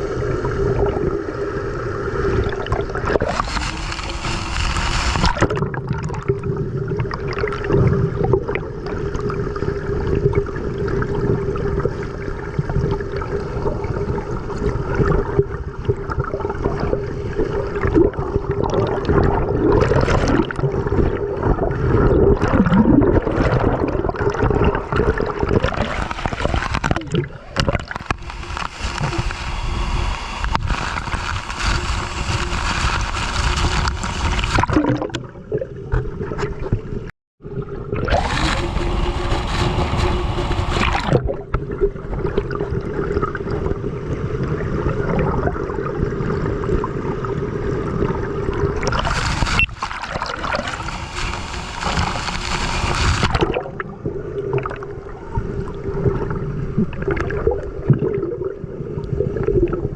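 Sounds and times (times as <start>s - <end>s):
water gurgling and sloshing: 0.0s - 59.9s.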